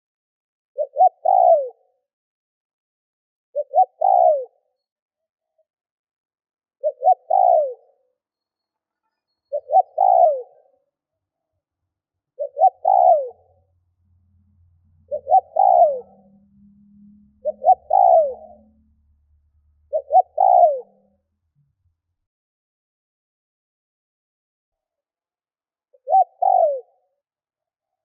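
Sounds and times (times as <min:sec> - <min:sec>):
dove cooing: 0:00.8 - 0:01.8, 0:03.6 - 0:04.6, 0:06.8 - 0:08.0, 0:09.5 - 0:10.7, 0:12.4 - 0:13.6, 0:15.0 - 0:19.0, 0:19.9 - 0:21.2, 0:26.0 - 0:27.0.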